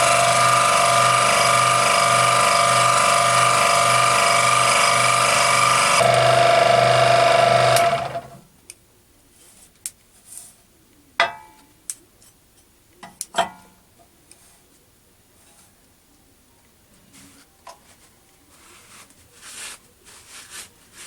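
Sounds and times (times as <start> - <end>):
scroll saw humming: 0.0 - 8.4.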